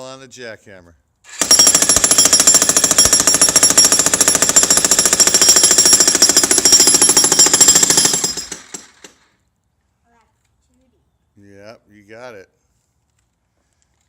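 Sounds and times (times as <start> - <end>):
jackhammer hammering: 1.3 - 9.4.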